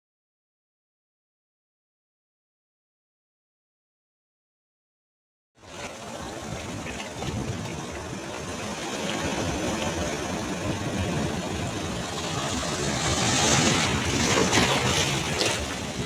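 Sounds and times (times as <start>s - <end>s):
surf rumbling: 5.6s - 16.0s.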